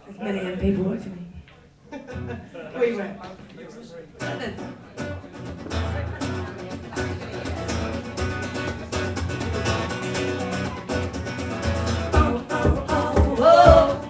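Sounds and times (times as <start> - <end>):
acoustic guitar strumming: 4.2 - 14.0.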